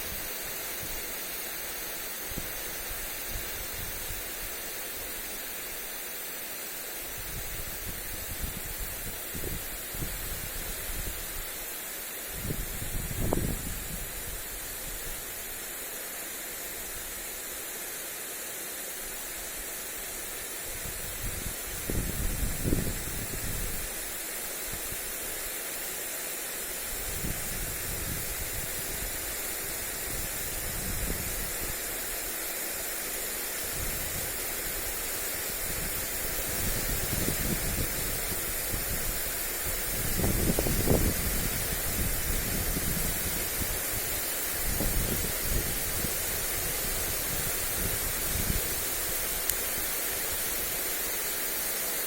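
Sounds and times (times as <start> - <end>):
sprinkler spraying water: 0.0 - 52.0
wind buffeting microphone: 12.3 - 14.3, 20.7 - 23.8, 35.6 - 49.3.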